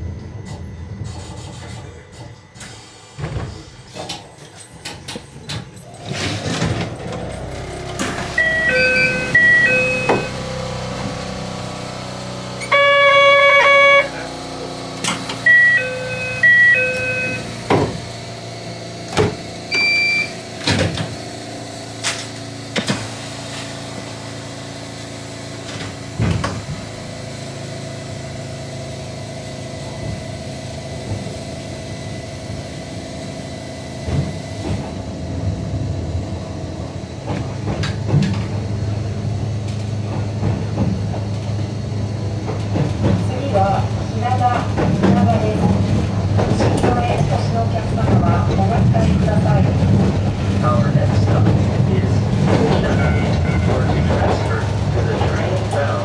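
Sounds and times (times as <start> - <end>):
railcar equipment hum: 0.0 - 56.0
long electronic tone: 7.8 - 14.6, 15.4 - 18.8
electronic chime beeps: 8.4 - 10.4, 15.5 - 17.5
knocks and clunks: 44.3 - 55.7.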